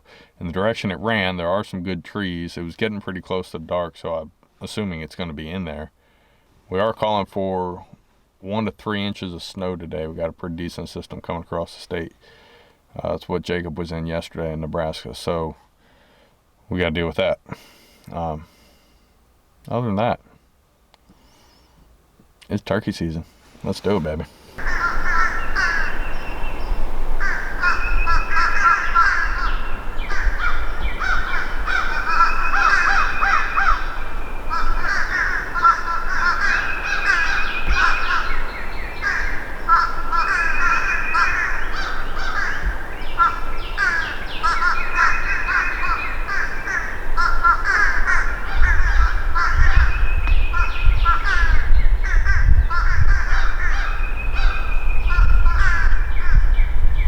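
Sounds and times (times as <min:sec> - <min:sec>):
birds calling: 0:23.1 - 0:57.0.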